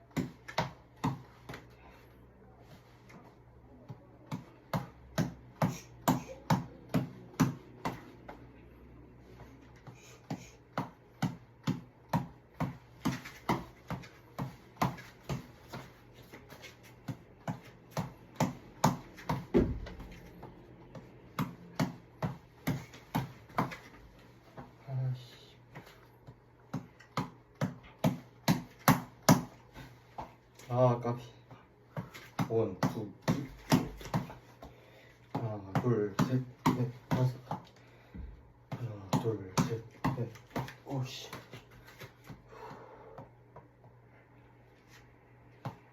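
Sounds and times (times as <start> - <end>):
hand slapping tap ball: 26.7 - 30.4, 31.9 - 34.7.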